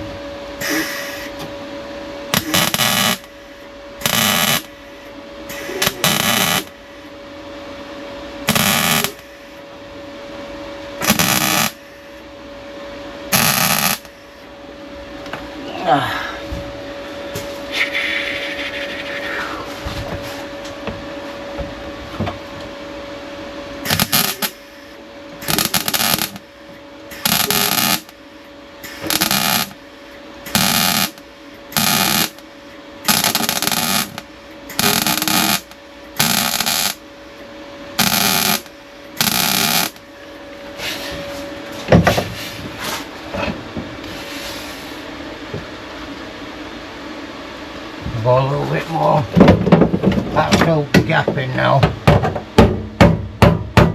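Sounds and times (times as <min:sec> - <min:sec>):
steady hum: 0:00.0 - 0:53.9
welder crackling bursts: 0:02.3 - 0:03.3, 0:04.0 - 0:04.7, 0:05.5 - 0:06.7, 0:08.5 - 0:09.3, 0:11.0 - 0:11.8, 0:13.3 - 0:14.1, 0:23.8 - 0:24.7, 0:25.4 - 0:26.4, 0:27.1 - 0:28.2, 0:28.8 - 0:29.8, 0:30.5 - 0:32.4, 0:33.1 - 0:37.0, 0:38.0 - 0:40.0.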